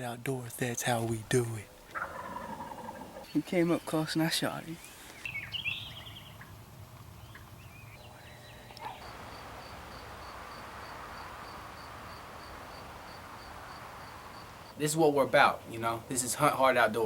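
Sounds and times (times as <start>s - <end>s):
soft steady hiss: 0.0s - 17.0s
faint bird chirps: 2.0s - 15.4s.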